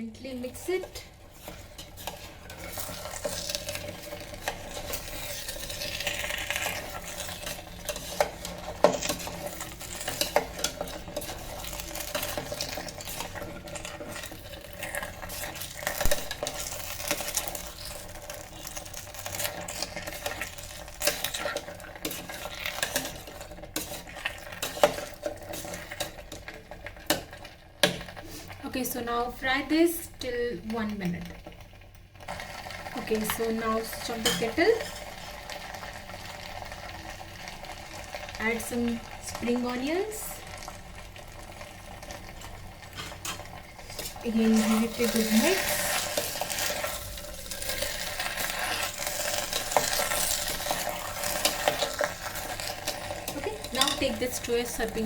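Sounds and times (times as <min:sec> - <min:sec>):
spoon clinking and scraping pot: 0:00.8 - 0:28.1, 0:33.2 - 0:35.6, 0:43.0 - 0:54.8.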